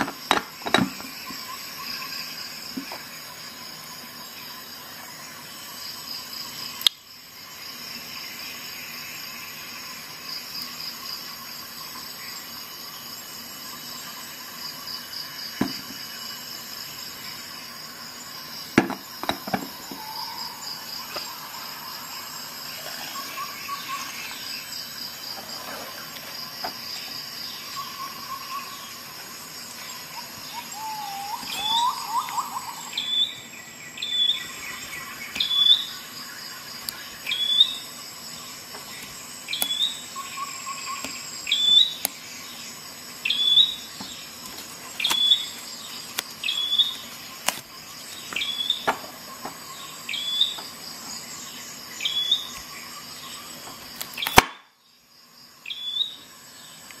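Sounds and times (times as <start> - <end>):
bird high hooked chirp: 30.5 - 36.0.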